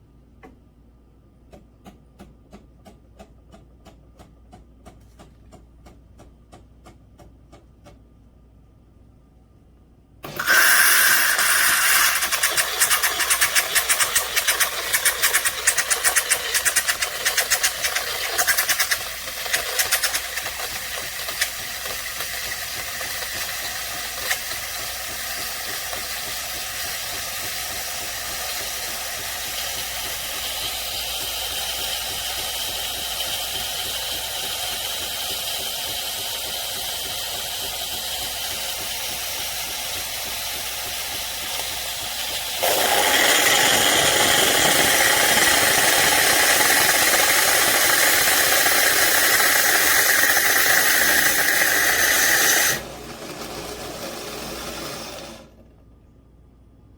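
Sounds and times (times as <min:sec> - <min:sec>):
espresso machine hissing hum: 0:10.2 - 0:53.1
espresso machine rattling: 0:10.3 - 0:55.3.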